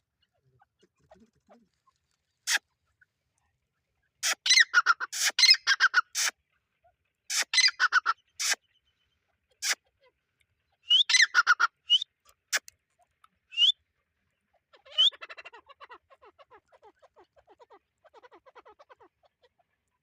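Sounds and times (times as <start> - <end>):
francolin calling: 10.7 - 12.7, 13.5 - 19.2.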